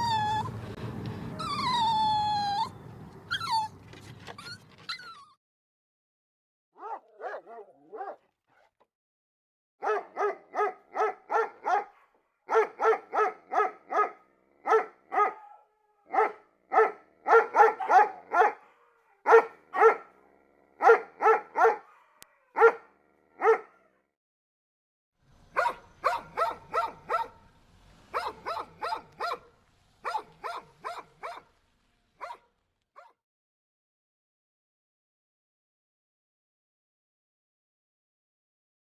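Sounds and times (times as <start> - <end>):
dog barking: 6.8 - 8.7, 9.8 - 20.2, 20.8 - 24.0, 25.5 - 27.4, 28.1 - 31.5, 32.2 - 33.2.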